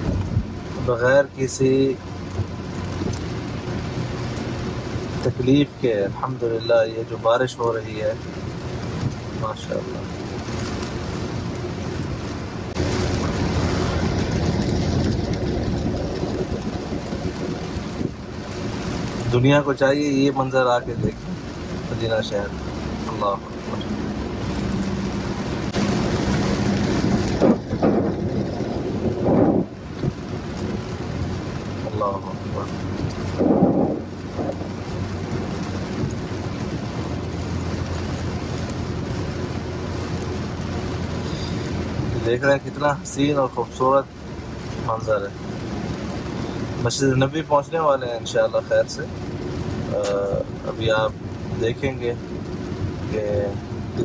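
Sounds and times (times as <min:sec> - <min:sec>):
car engine hum: 0:00.0 - 0:54.0
road noise: 0:00.0 - 0:54.0
steady rain: 0:00.0 - 0:54.0
loud low rumble: 0:12.5 - 0:18.3, 0:20.8 - 0:31.3, 0:32.3 - 0:34.8.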